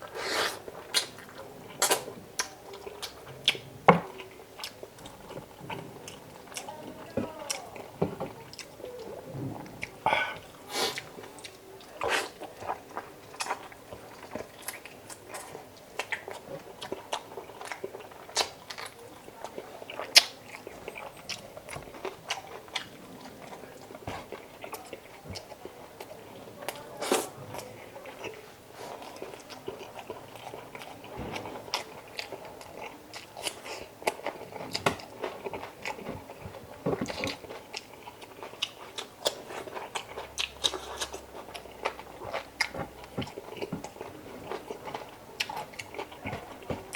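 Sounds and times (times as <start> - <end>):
person biting and chewing food: 0.0 - 5.4, 9.8 - 19.0.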